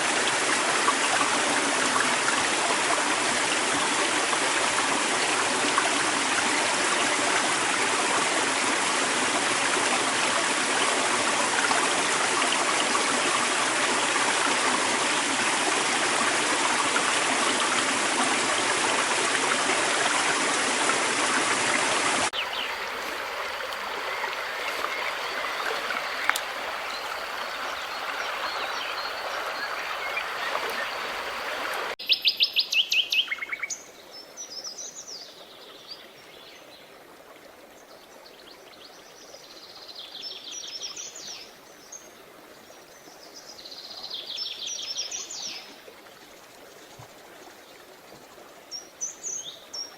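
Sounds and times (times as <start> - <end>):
stream water rushing: 0.0 - 32.0
loud bird song rapid notes: 23.9 - 33.7.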